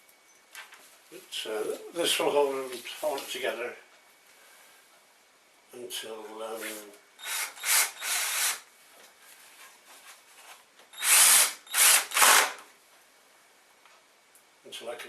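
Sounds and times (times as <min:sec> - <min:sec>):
power drill driving screws into wood: 0:07.2 - 0:08.6, 0:10.9 - 0:12.6.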